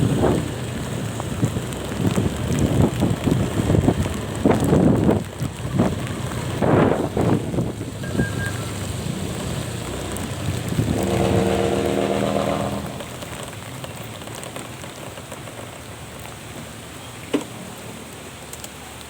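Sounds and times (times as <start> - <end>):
wind buffeting microphone: 0.0 - 13.4
moving vehicle rumble: 0.0 - 19.0
rain: 0.0 - 19.0.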